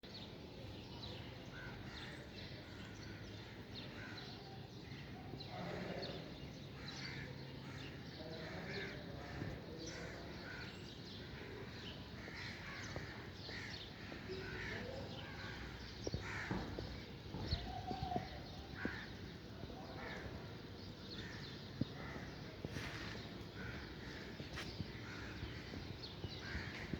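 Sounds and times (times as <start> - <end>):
steady background noise: 0.1 - 26.9
birds calling: 5.6 - 26.9.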